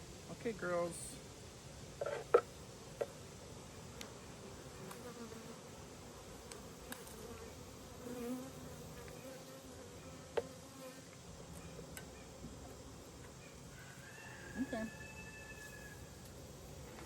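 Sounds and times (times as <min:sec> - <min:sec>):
bees buzzing: 0:03.8 - 0:11.1.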